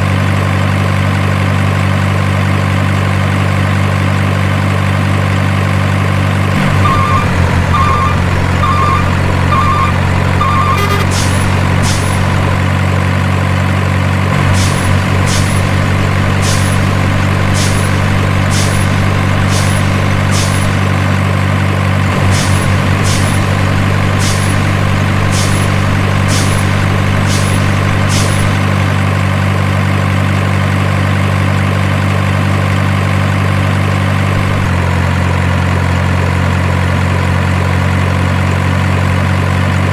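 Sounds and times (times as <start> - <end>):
simulated truck engine idling: 0.0 - 39.9
reversing beeps: 6.7 - 12.2.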